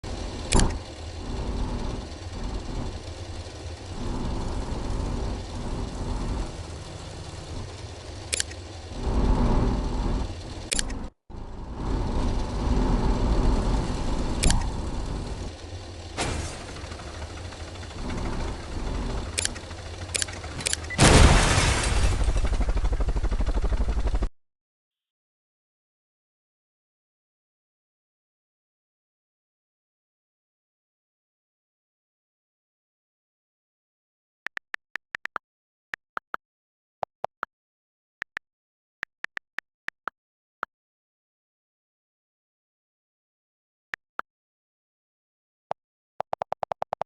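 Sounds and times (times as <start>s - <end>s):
engine starting and running: 0.0s - 24.3s
engine sharp clicks: 7.8s - 8.9s, 14.4s - 21.0s.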